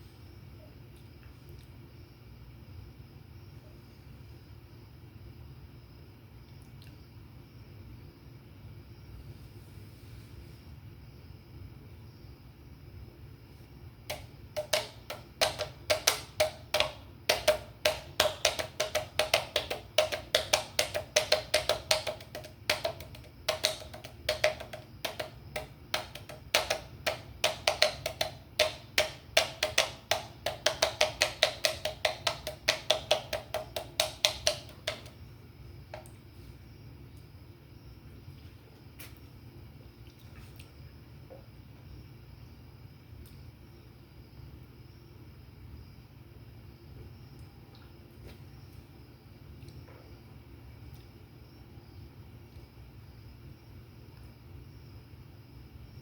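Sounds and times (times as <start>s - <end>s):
tapping on metal can: 14.1s - 35.2s.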